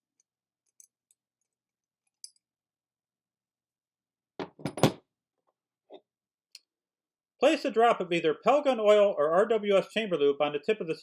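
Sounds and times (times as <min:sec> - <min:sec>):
clatter of metal knocks: 0:04.4 - 0:05.0.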